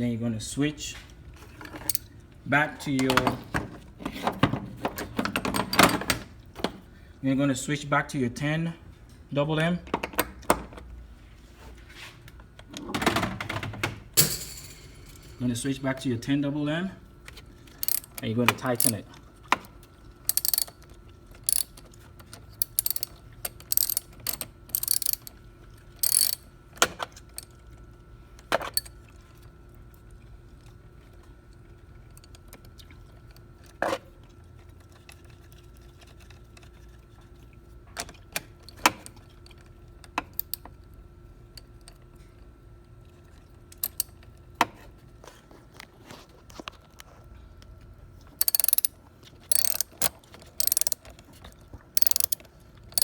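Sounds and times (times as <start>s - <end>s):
tool knocks: 14.2s - 15.4s
ratchet wrench clicking: 17.8s - 19.0s, 20.3s - 20.7s, 21.4s - 21.8s, 22.6s - 25.3s, 26.0s - 26.4s, 43.8s - 44.1s, 48.4s - 48.9s, 49.5s - 51.0s, 52.0s - 53.0s.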